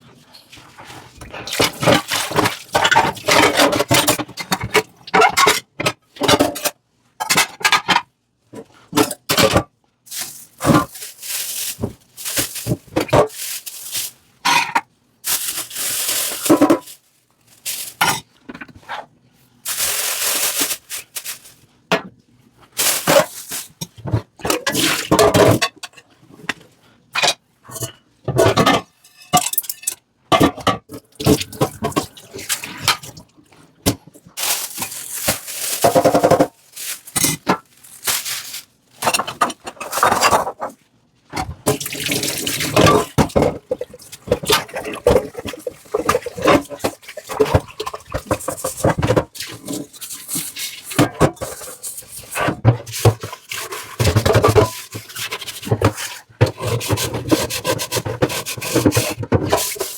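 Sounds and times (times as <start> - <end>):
dish scrubbing: 0.3 - 5.6, 9.4 - 17.0, 17.6 - 19.0, 22.7 - 25.6, 30.4 - 40.7, 41.4 - 59.9.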